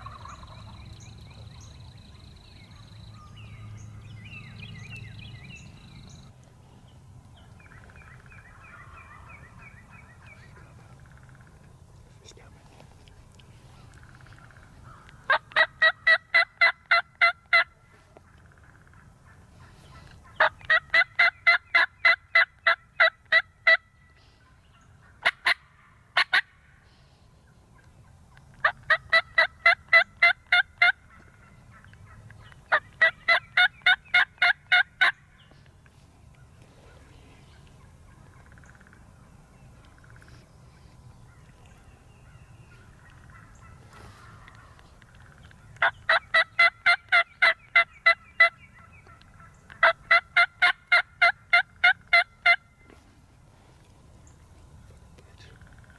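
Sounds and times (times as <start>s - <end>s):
turkey yelping: 0.0s - 0.7s, 13.7s - 17.7s, 18.4s - 23.8s, 25.0s - 26.6s, 28.6s - 35.2s, 42.7s - 52.6s.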